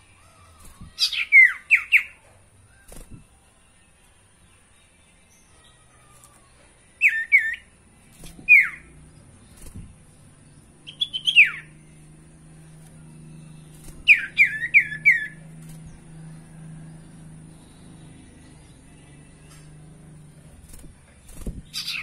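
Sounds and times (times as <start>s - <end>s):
faint low hum: 0.0s - 22.0s
bird whistling descending notes: 14.0s - 15.4s.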